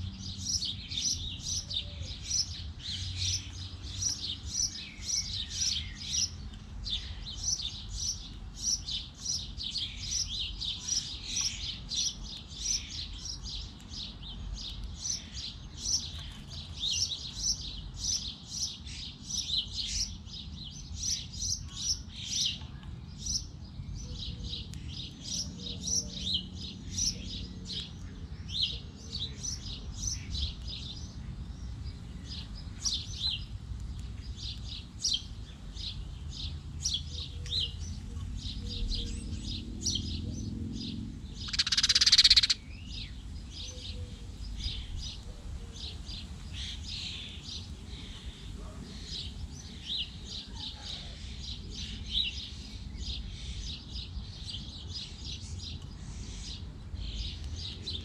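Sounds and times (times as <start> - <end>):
small birds chirping: 0.0 - 58.0
faint low rumble: 22.5 - 41.9.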